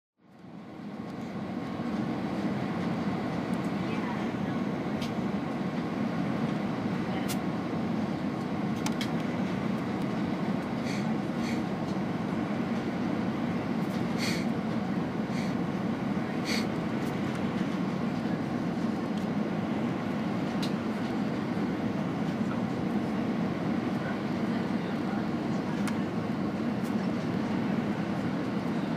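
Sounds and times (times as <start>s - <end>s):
airplane landing rumble: 0.2s - 28.9s.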